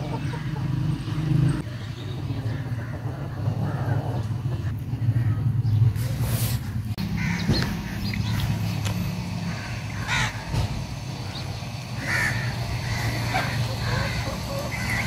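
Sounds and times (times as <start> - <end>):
harsh bird calls: 0.0 - 15.0.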